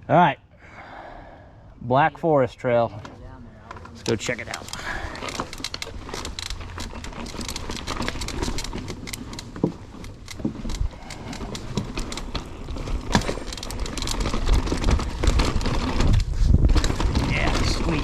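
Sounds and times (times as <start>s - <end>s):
bike rattling over rocks: 3.8s - 18.0s
wind rumble on microphone: 14.4s - 18.0s.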